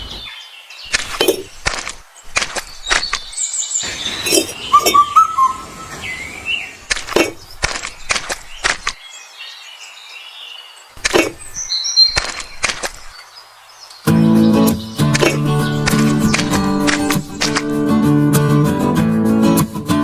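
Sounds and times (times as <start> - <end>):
birds chirping: 0.0 - 18.0
sharp knocks: 15.0 - 17.7.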